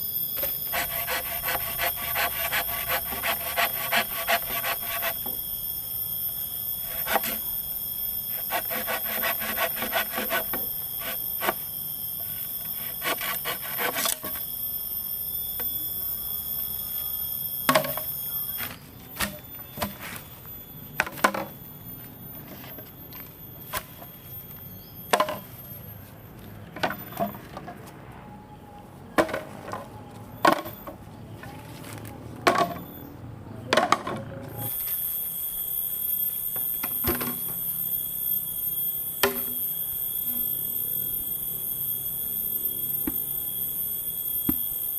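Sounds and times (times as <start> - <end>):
wood sawing strokes: 0.4 - 5.3, 6.8 - 7.5, 8.3 - 11.7, 12.6 - 14.4.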